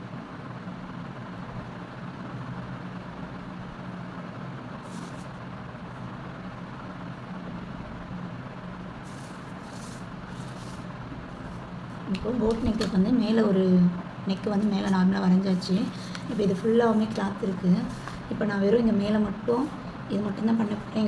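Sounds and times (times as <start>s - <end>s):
low background hum: 0.0s - 21.0s
pencil scratching on paper: 9.0s - 11.7s.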